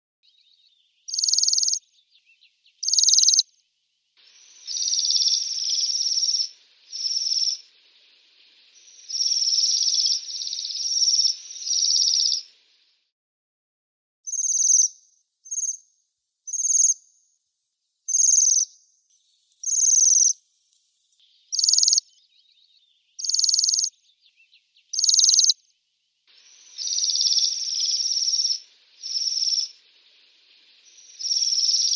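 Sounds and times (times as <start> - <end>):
bird trilling calls: 2.8 - 3.4, 4.7 - 7.7, 21.5 - 22.6, 23.2 - 25.6.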